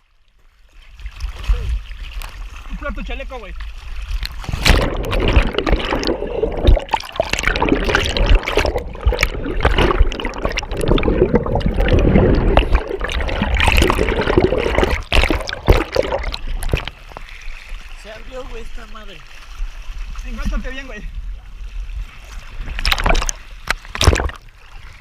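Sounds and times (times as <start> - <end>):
water splashing and gurgling: 0.0 - 25.0.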